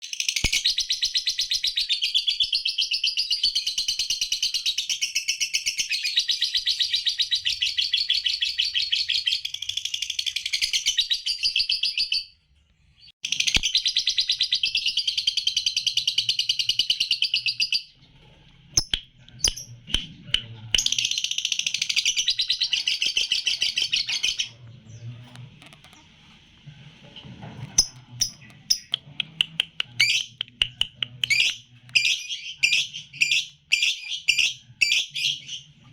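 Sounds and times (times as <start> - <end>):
sharp bird chips: 18.8 - 24.5, 27.8 - 35.0
lovebird chattering song: 18.8 - 25.4, 27.7 - 35.7.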